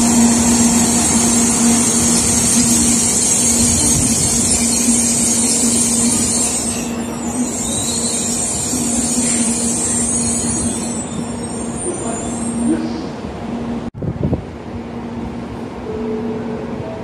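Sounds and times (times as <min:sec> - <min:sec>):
train running hiss: 0:00.0 - 0:13.4.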